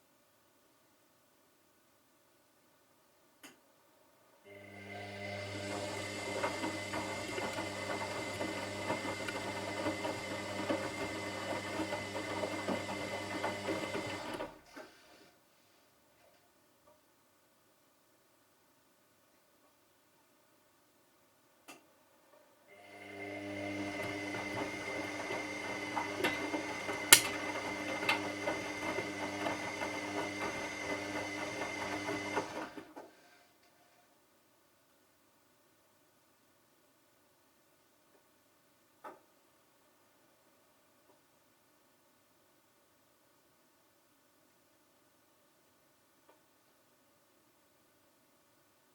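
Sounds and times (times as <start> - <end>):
washing machine motor hum: 4.5 - 14.6, 22.7 - 32.8.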